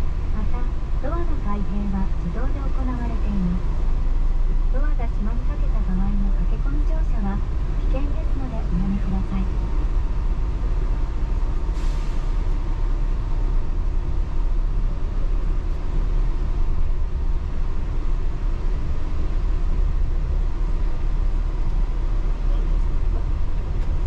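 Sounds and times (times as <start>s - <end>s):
faint steady whine: 0.0s - 10.6s
train rumbling on guideway: 0.0s - 24.0s.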